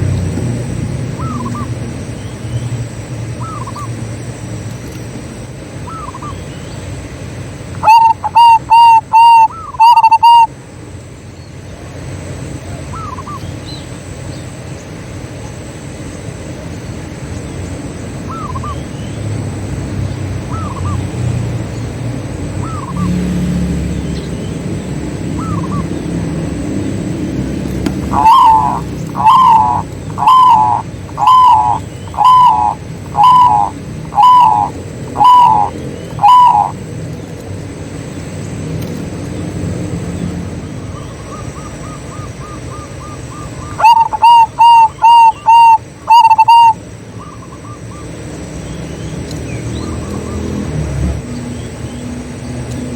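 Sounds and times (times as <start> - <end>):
loud close dove cooing: 7.8 - 10.5, 22.6 - 24.0, 25.3 - 36.9, 41.3 - 47.9
low background rumble: 10.5 - 50.4
faint distant dove coos: 26.5 - 36.9, 41.3 - 47.9.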